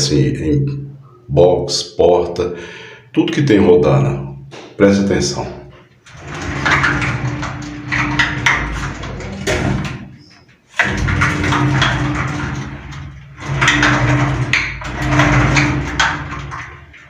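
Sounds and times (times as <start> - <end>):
sliding shower door rollers grinding: 6.0 - 17.0.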